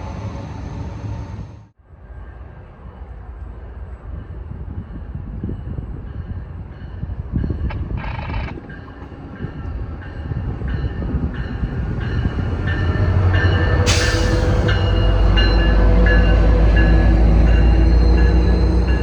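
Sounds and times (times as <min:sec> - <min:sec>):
train bell striking: 0:08.8 - 0:19.0
diesel locomotive rumble: 0:10.3 - 0:19.0
burst of hiss: 0:13.9 - 0:15.0.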